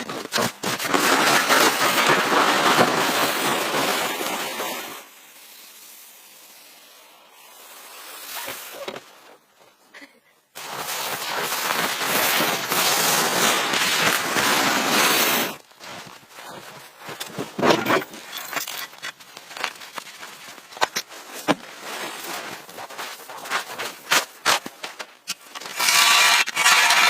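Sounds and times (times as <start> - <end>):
steady hiss: 2.3 - 9.8
crackles and sharp pops: 10.6 - 15.7.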